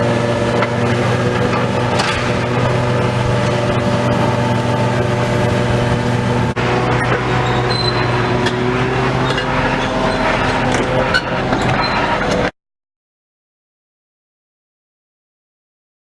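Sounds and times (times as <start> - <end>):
large engine running steadily: 0.0 - 12.5.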